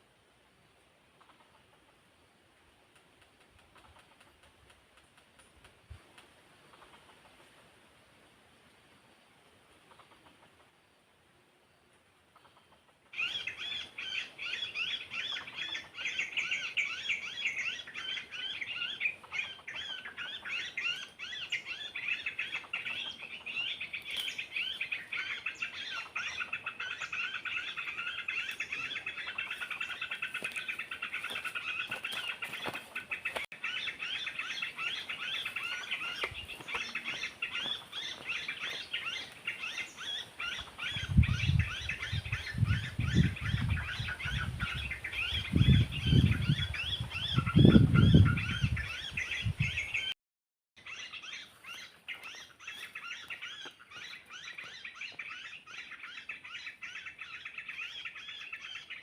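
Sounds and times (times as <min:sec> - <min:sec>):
small birds chirping: 0:11.7 - 0:50.2, 0:50.8 - 0:59.0.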